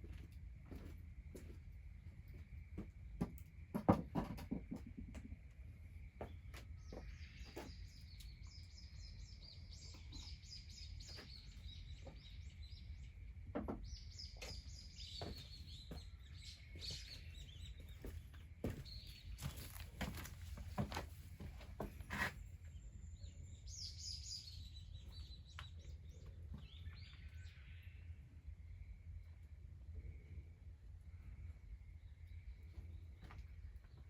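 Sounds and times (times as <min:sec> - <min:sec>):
songbird chattering song: 0:04.9 - 0:19.8, 0:22.3 - 0:30.5.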